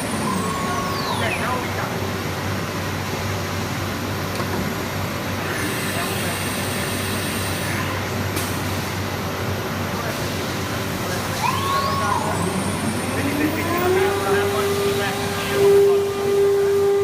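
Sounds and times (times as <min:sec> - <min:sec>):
high machine whine: 0:00.0 - 0:02.9, 0:10.2 - 0:17.0.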